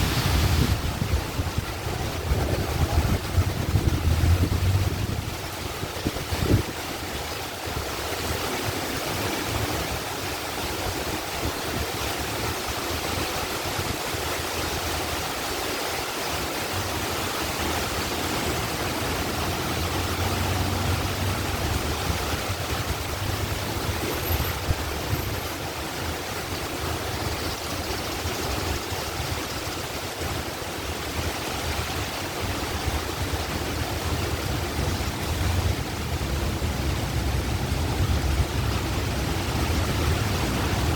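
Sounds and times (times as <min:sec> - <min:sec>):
vehicle engine rumble: 0:00.0 - 0:06.7, 0:18.2 - 0:27.1, 0:32.4 - 0:40.9
heavy rain pouring: 0:00.0 - 0:40.9.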